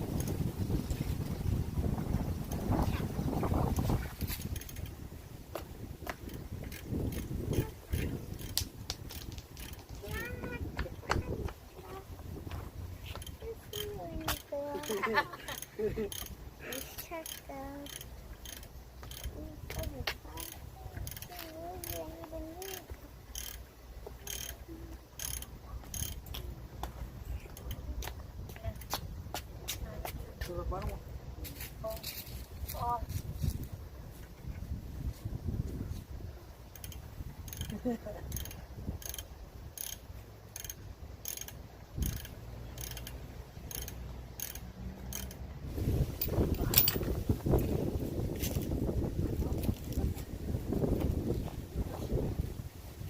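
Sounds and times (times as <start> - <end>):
ratchet wrench rasping: 4.3 - 5.0, 6.2 - 10.3, 13.1 - 26.4, 36.8 - 45.4.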